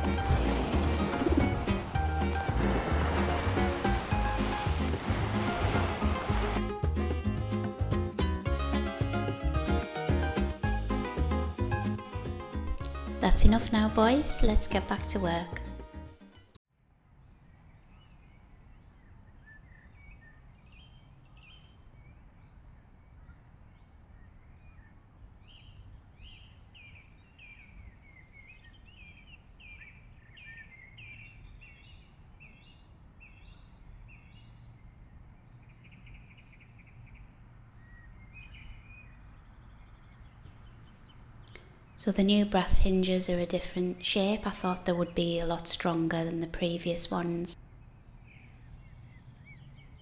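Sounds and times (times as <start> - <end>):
small birds chirping: 17.3 - 45.9.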